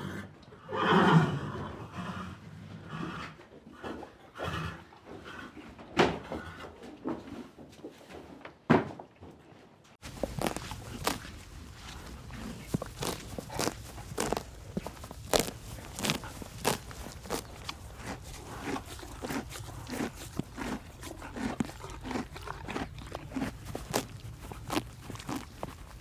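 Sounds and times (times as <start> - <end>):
horse movement: 10.0 - 26.0.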